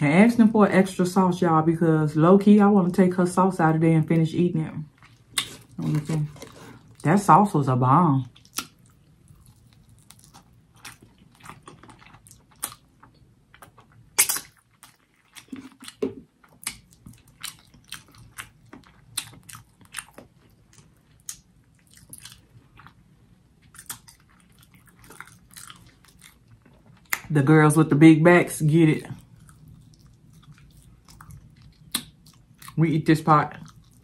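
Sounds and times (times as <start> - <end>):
person chewing with wet mouth clicks: 5.0 - 6.5, 8.4 - 23.0, 23.6 - 27.3, 29.2 - 32.8.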